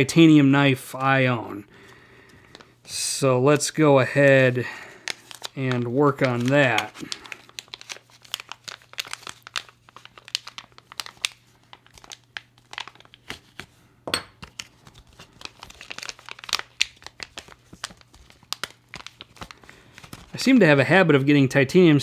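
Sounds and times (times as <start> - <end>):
plastic packaging crinkling: 4.1 - 13.8, 14.4 - 21.3.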